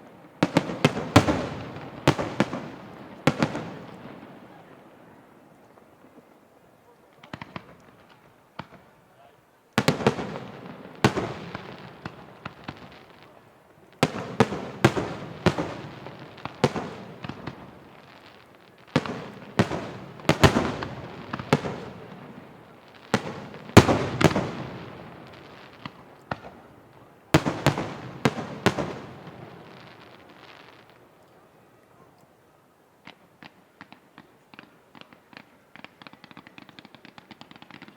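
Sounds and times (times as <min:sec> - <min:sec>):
firework shells bursting: 0:14.0 - 0:31.0.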